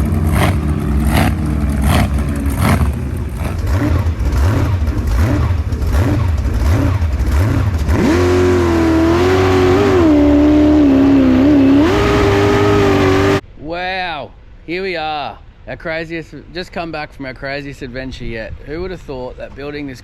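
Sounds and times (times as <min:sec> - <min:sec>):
boat engine revving: 0:00.0 - 0:13.4.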